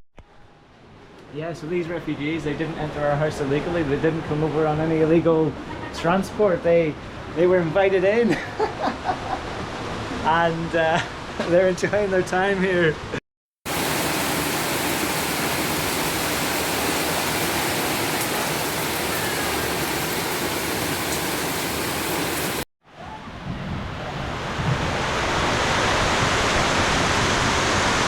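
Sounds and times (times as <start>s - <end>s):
heavy rain pouring: 13.7s - 22.7s.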